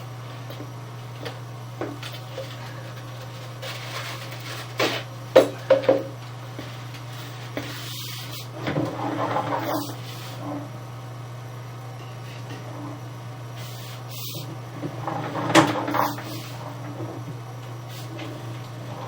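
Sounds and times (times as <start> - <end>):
rustling scrape: 2.1 - 5.1, 6.6 - 10.7.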